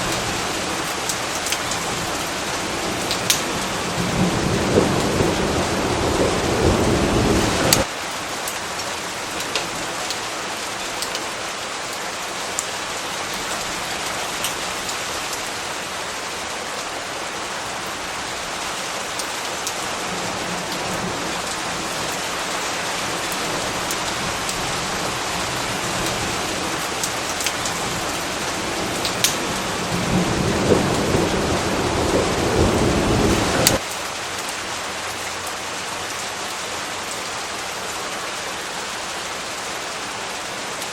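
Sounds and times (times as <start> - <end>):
thunder rumbling: 0.0 - 7.9, 19.9 - 33.8
heavy rain pattering: 0.0 - 40.9.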